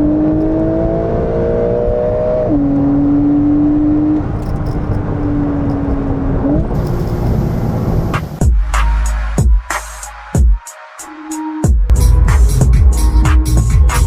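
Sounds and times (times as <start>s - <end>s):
car engine accelerating: 0.0s - 8.4s.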